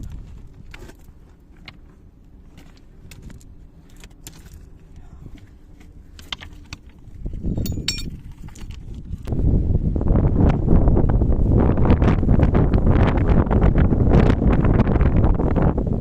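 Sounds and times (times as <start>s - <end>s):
wind buffeting microphone: 5.0s - 16.0s
metallic jingle: 7.6s - 8.5s.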